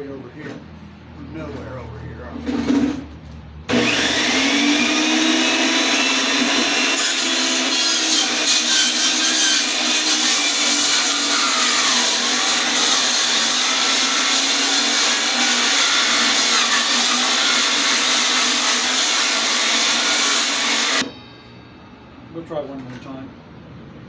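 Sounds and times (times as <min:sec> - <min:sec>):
electric saw cutting log: 0:03.7 - 0:21.1.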